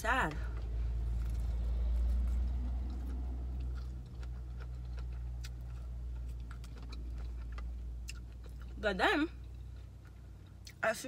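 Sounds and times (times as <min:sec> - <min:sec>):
steady low hum: 0:00.0 - 0:11.0
wet chewing mouth sounds: 0:01.0 - 0:08.8.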